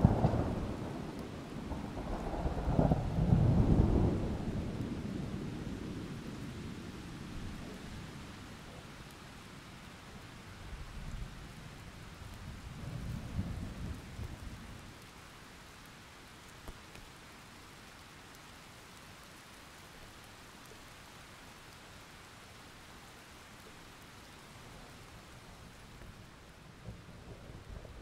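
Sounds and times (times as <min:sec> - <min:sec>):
thunder rumbling: 0:00.0 - 0:06.4, 0:26.7 - 0:28.0.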